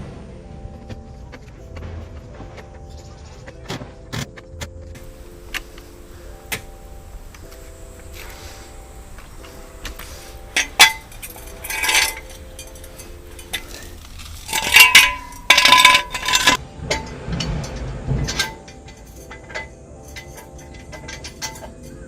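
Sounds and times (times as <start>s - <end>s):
metal tools clinking and clattering: 5.0s - 22.0s.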